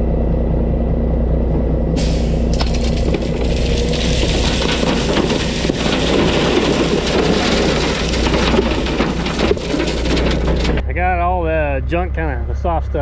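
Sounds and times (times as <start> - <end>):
heavy diesel machinery running: 0.0 - 10.9
gravel and rock crunching: 2.0 - 10.8.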